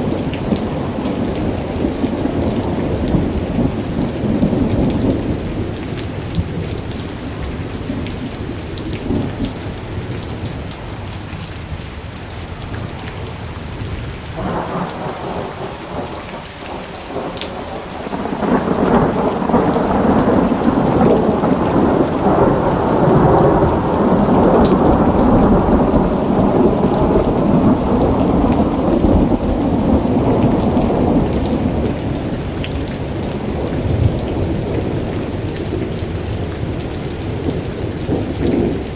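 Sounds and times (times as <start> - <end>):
steady rain: 0.0 - 38.9
rolling thunder: 13.8 - 38.9.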